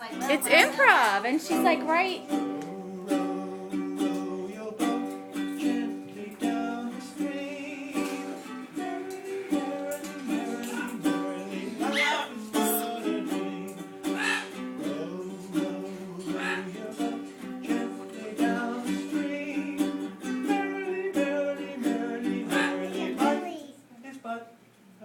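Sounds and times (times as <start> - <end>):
acoustic guitar playing: 0.0 - 23.8
parrot singing rising calls: 14.1 - 14.6.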